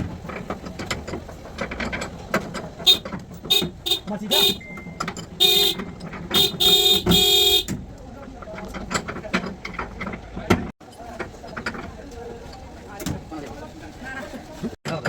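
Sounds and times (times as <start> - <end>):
short knocks and clicks: 0.0 - 10.7
car horn toots: 2.8 - 7.8.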